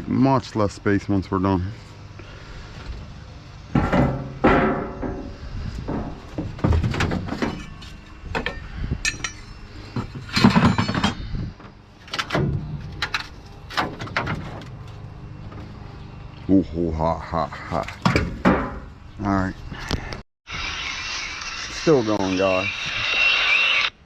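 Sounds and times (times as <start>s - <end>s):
sheet metal clanking: 3.7s - 11.2s.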